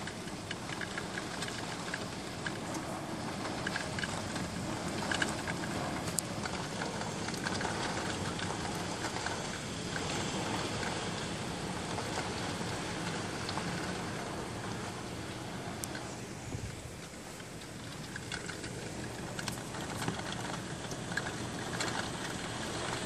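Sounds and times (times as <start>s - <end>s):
heavy rain pouring: 0.0s - 23.0s
raindrops spattering: 0.0s - 23.0s.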